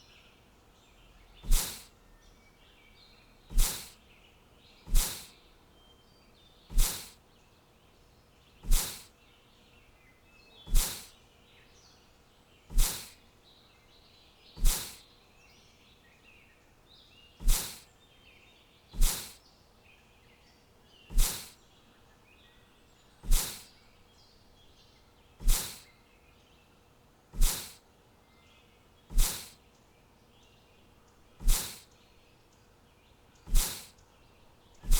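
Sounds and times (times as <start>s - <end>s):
faint bird chirping: 0.0s - 34.9s.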